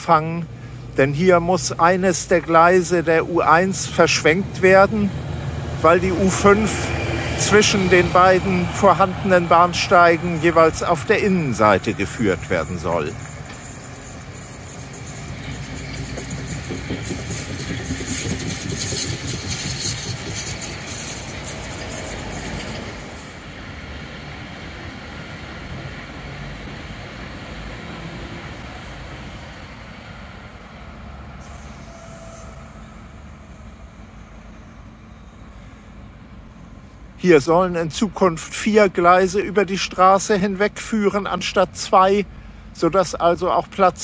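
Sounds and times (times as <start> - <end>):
distant train crossing a bridge: 0.0 - 44.0
passing train rumble: 0.0 - 44.0
concrete mixer truck: 1.6 - 36.5.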